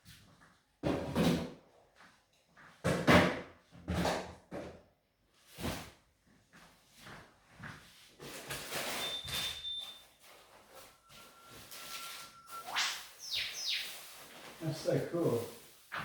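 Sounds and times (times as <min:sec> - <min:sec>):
steady high tone: 0:10.7 - 0:13.6.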